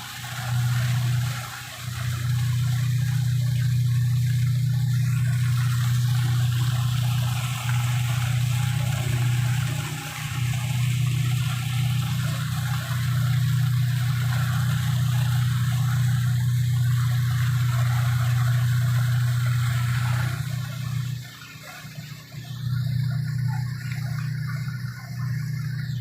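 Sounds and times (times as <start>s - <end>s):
ferry engine droning: 0.0s - 26.0s
water rushing along hull: 0.0s - 26.0s.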